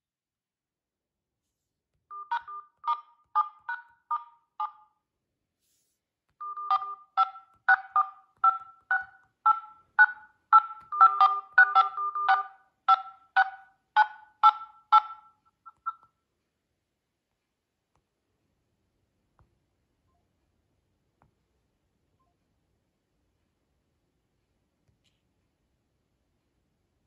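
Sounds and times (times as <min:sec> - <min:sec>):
keypad dialing beeps: 0:02.1 - 0:04.8, 0:06.4 - 0:16.0.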